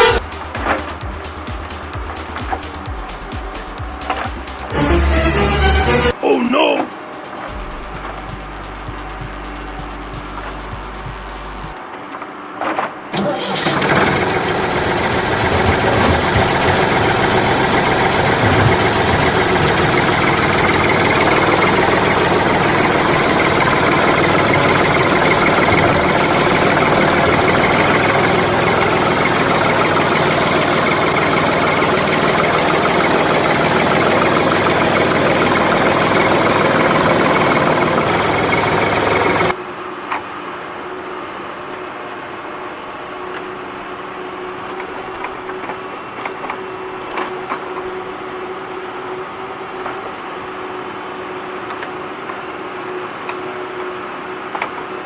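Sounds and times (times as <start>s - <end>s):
tractor engine chugging: 0.0s - 11.8s, 13.4s - 39.5s.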